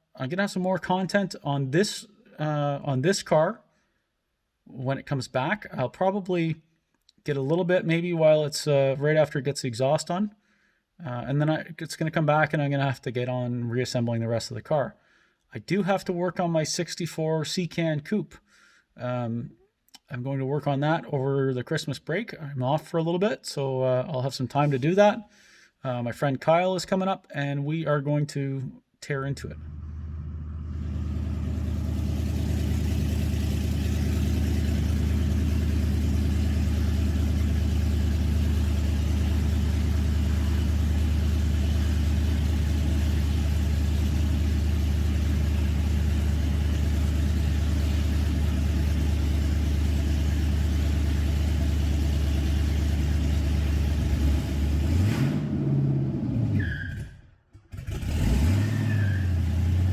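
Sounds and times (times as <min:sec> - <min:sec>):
vehicle engine cruising: 0:29.4 - 0:56.6, 0:57.7 - 0:59.9
road noise: 0:29.4 - 0:56.7.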